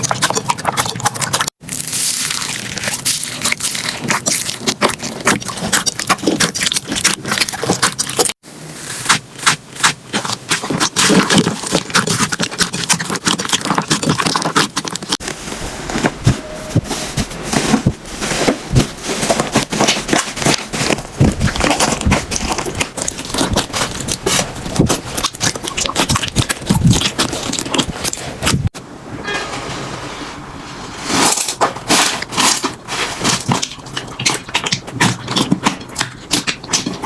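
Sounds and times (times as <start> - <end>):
slime scraping: 0.0 - 28.8, 30.9 - 37.0
slime crackling and popping: 1.6 - 15.3, 18.3 - 28.6.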